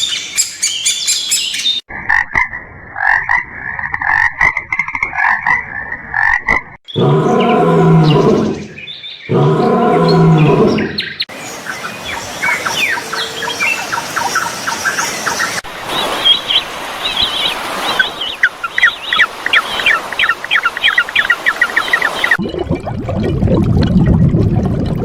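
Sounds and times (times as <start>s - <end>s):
small birds chirping: 6.9s - 22.4s.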